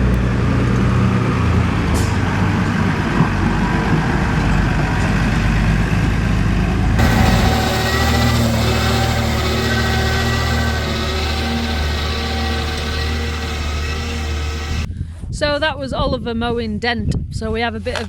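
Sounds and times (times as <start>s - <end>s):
tractor engine mowing grass: 7.0s - 14.9s.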